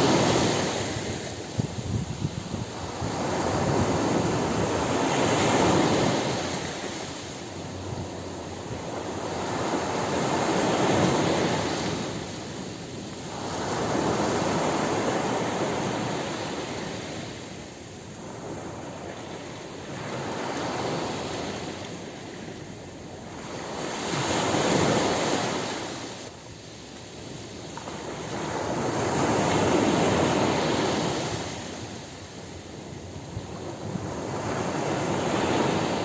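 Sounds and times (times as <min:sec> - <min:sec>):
ocean waves breaking on beach: 0:00.0 - 0:36.0.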